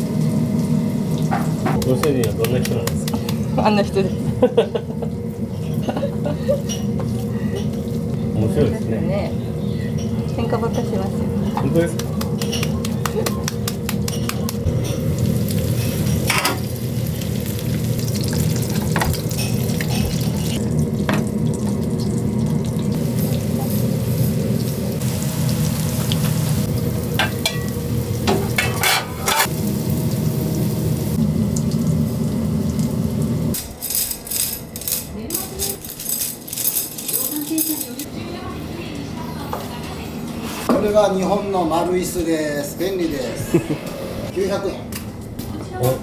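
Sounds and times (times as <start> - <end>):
patties sizzling in a frying pan: 14.8 - 33.5
chopsticks clinking: 33.6 - 38.1.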